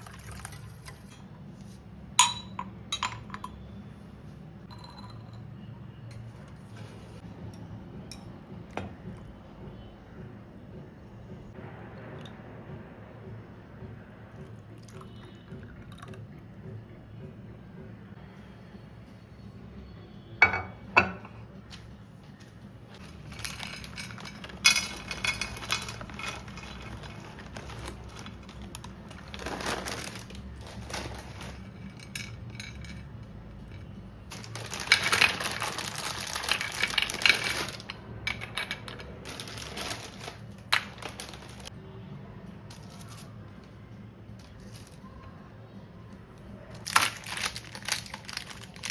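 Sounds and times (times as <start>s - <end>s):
dishes clinking: 2.2s - 3.7s, 4.7s - 5.5s, 20.4s - 21.4s, 23.0s - 28.4s
rustling and scraping: 6.3s - 7.3s, 21.7s - 33.0s, 34.3s - 41.7s.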